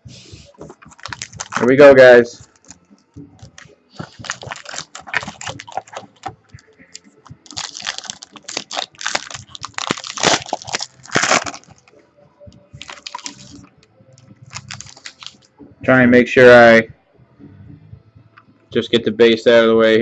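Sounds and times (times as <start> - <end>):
card packaging crinkling: 0.8 - 1.9, 3.4 - 11.9, 12.8 - 13.7, 14.5 - 15.5.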